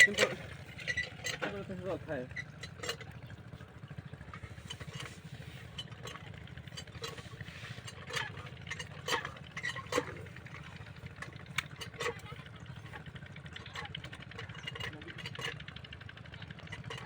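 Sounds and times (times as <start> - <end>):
small diesel engine thudding: 0.0 - 17.0.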